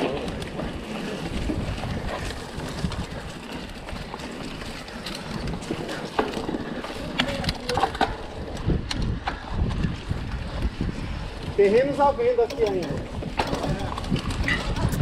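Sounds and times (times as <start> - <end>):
bike clicking and rattling: 0.0 - 15.0
wind buffeting microphone: 0.0 - 15.0.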